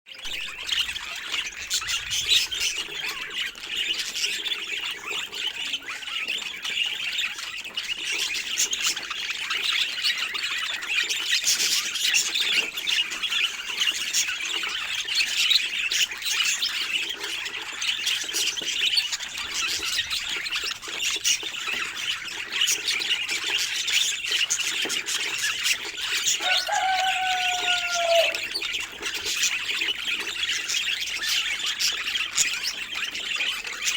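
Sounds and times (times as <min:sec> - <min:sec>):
budgerigars chattering and warbling: 0:00.1 - 0:33.9.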